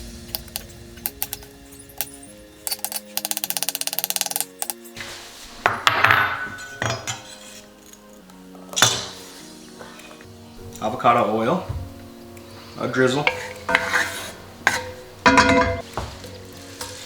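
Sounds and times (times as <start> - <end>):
background music: 0.0 - 17.0
knife scraping cutting board: 13.3 - 15.1.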